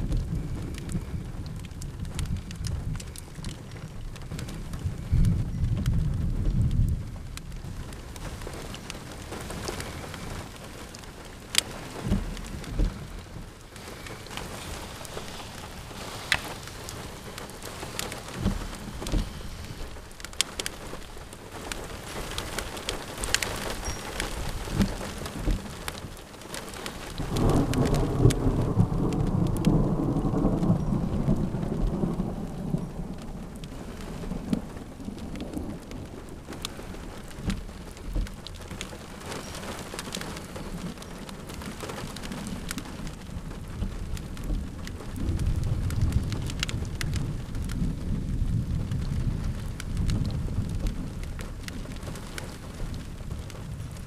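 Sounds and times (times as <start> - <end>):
raindrops ticking: 0.0 - 54.0
steady rain: 0.0 - 54.0
thunder rumbling: 0.0 - 54.0.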